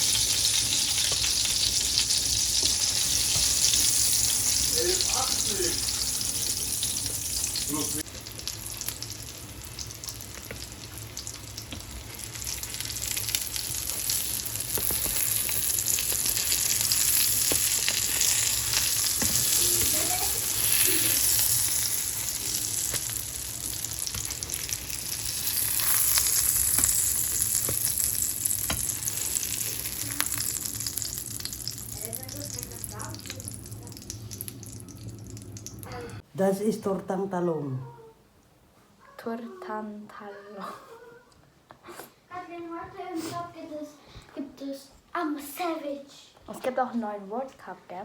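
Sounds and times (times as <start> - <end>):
omelette sizzling in a pan: 0.0 - 36.2.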